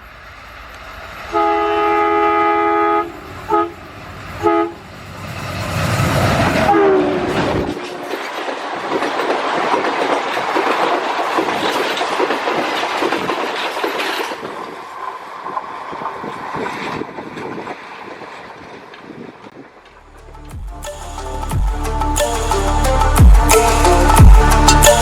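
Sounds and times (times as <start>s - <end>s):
train wheels clattering over rail joints: 7.4s - 19.4s.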